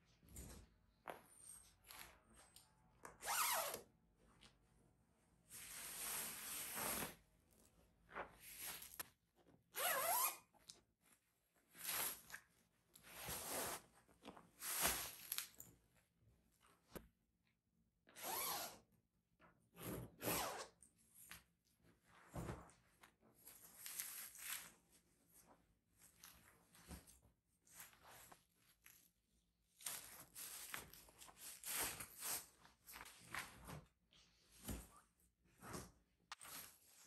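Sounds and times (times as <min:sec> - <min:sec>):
zipper being pulled open: 0:09.8 - 0:10.5, 0:18.2 - 0:18.8.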